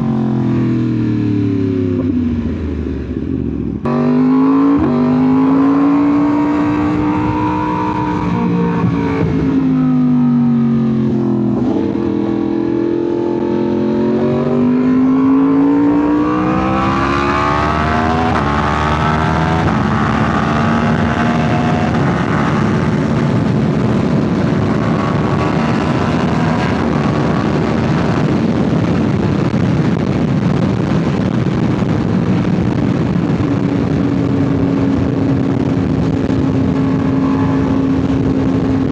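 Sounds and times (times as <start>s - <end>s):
motorcycle engine revving: 0.0s - 38.9s
wind rushing: 11.1s - 38.9s.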